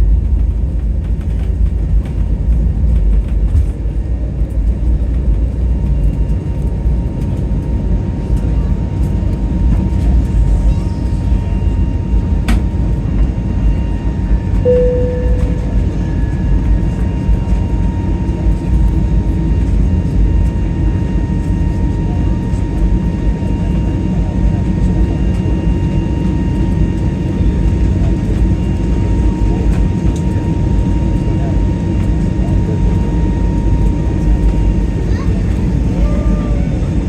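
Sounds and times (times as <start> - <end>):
rumble of aircraft engines: 0.0 - 37.0
short tone: 14.7 - 16.4
thin steady whine: 14.7 - 16.6.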